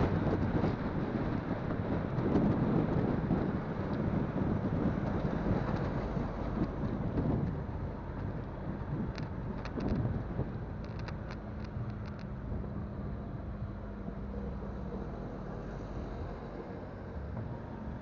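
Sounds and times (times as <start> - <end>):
motorcycle engine hum: 0.0 - 18.0
wind buffeting microphone: 0.0 - 18.0
light ticks: 10.8 - 12.3.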